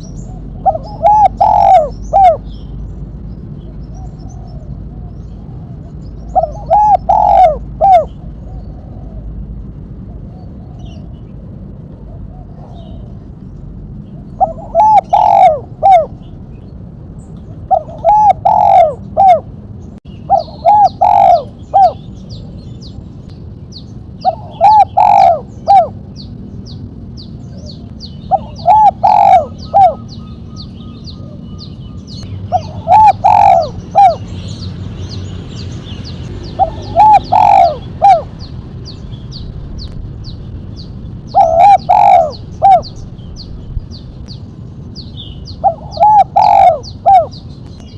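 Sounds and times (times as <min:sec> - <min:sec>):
dove cooing: 0:00.0 - 0:02.6, 0:03.7 - 0:09.4, 0:14.2 - 0:16.3, 0:17.6 - 0:19.5, 0:20.2 - 0:22.1, 0:24.2 - 0:26.2, 0:27.5 - 0:34.3, 0:36.4 - 0:38.4, 0:41.3 - 0:43.0, 0:45.5 - 0:47.4.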